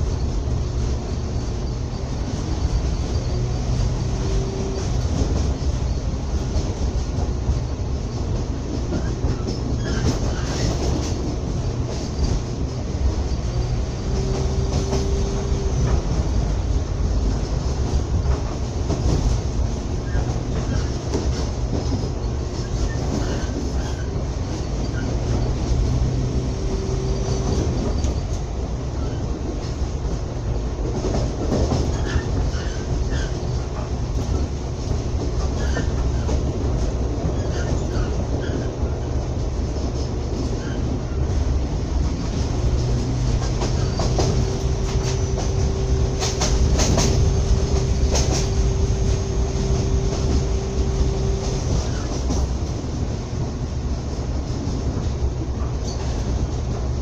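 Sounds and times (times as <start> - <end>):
wheels rumbling on rail: 0.0 - 57.0.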